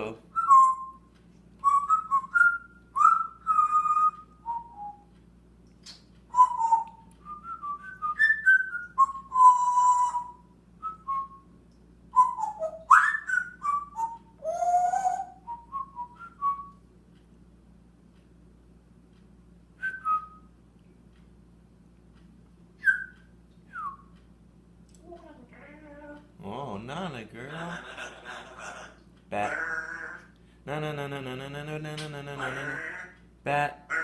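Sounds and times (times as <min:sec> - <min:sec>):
talking bird whistling: 0:00.4 - 0:05.1, 0:05.9 - 0:11.4, 0:12.2 - 0:16.7, 0:22.8 - 0:24.1.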